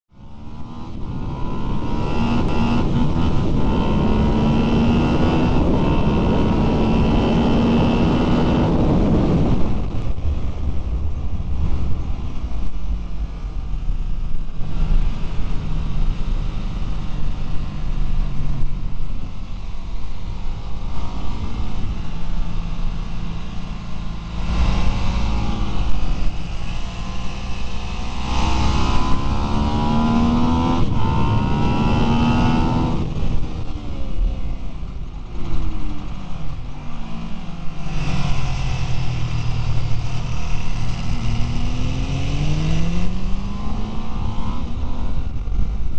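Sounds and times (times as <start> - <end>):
motorcycle engine revving: 0.2 - 10.5, 11.6 - 45.9
wind rushing: 0.2 - 45.9.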